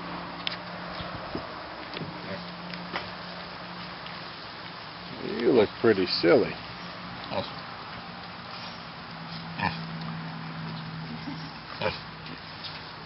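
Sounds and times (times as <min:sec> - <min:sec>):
pig grunting: 0:07.3 - 0:07.6, 0:09.5 - 0:10.0, 0:11.0 - 0:12.6.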